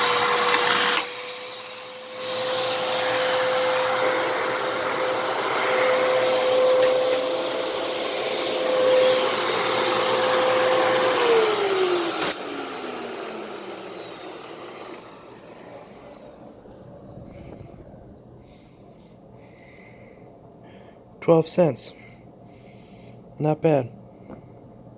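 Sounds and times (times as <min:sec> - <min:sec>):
vacuum cleaner spinning down: 0:00.0 - 0:17.9
vacuum cleaner motor whine: 0:00.0 - 0:18.0.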